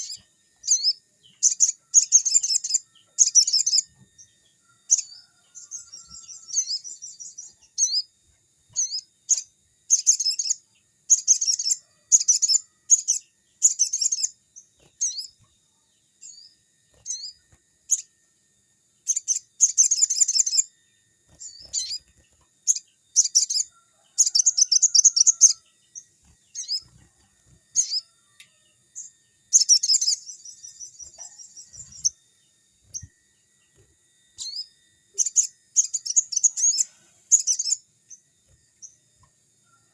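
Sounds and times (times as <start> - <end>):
songbird singing rapid trills: 0.0 - 39.9.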